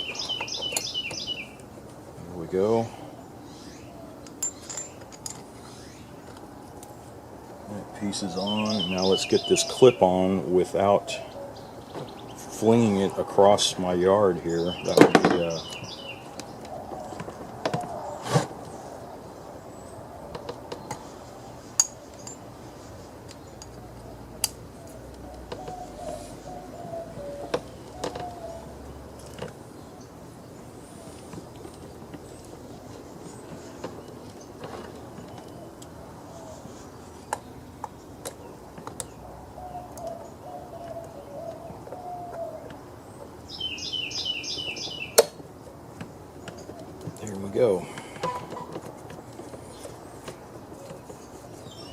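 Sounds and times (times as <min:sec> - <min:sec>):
high bird chirps: 0:00.0 - 0:01.6, 0:08.3 - 0:10.1, 0:14.6 - 0:16.4, 0:43.5 - 0:45.4
low repeated bird notes: 0:00.0 - 0:51.9.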